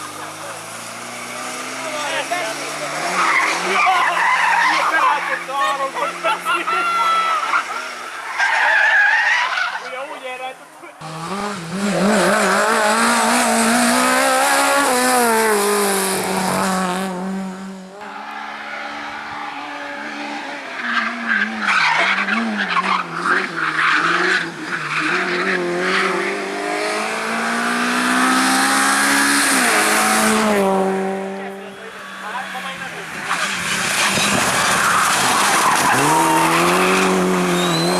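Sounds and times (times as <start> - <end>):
car engine revving: 0.0 - 8.3, 11.0 - 37.9
tyres squealing: 31.8 - 37.9
engine crackles: 32.9 - 37.9.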